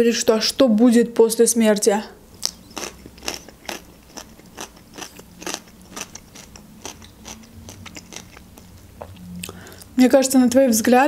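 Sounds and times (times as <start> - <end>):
crunchy cucumber chewing: 2.4 - 9.6.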